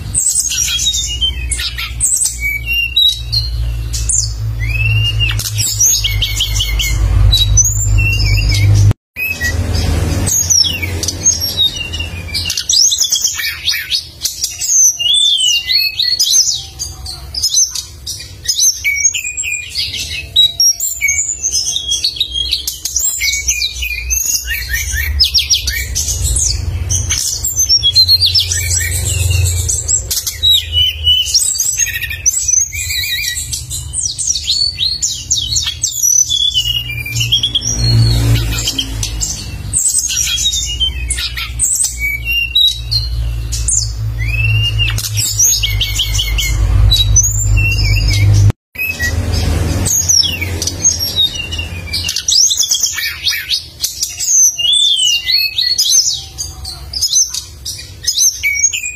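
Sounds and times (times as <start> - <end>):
songbird singing: 0.0 - 58.9.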